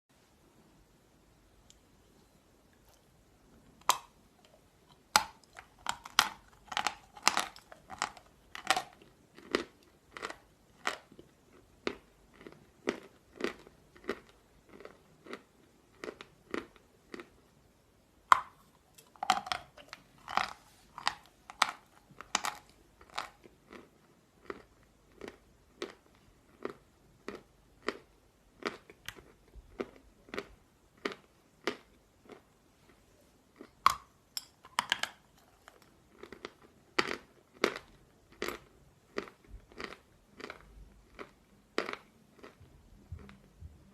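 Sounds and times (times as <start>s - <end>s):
chalk crunching being chewed: 3.8s - 17.3s.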